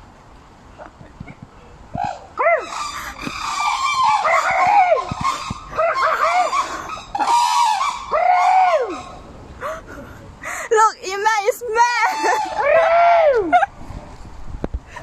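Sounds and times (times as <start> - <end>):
bird calling: 2.0 - 9.8, 11.8 - 12.8.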